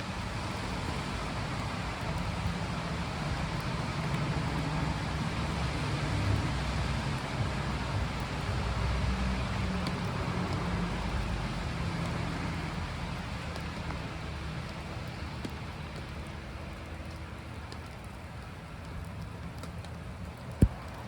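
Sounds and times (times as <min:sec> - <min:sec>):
wet snow and rain falling: 0:00.0 - 0:21.0.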